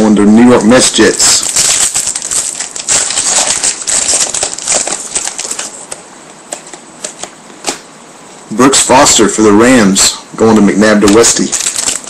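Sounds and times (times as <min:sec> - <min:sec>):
trading cards rustling and sliding: 0:00.4 - 0:07.8.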